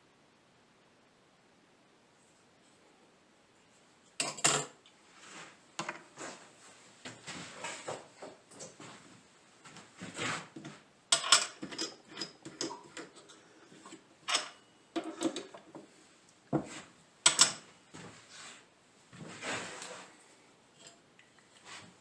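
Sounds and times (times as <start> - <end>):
tools clicking and knocking: 10.6 - 15.9, 17.3 - 17.7.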